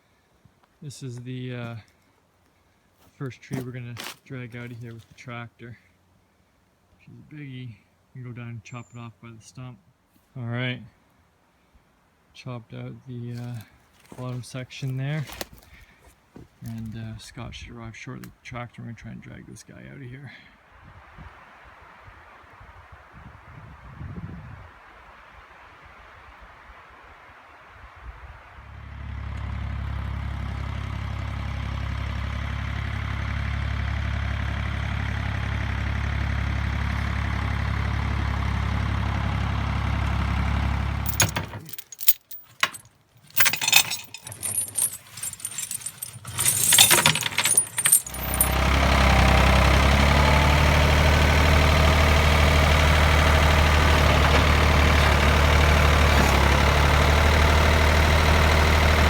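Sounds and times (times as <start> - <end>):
clicks and rattles: 41.1 - 48.8
tractor engine running: 43.3 - 59.0.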